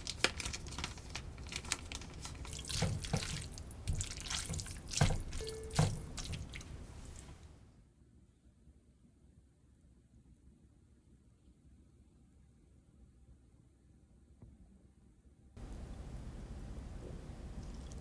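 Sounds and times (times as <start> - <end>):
water splashing in a sink: 1.6 - 7.5, 17.5 - 18.0.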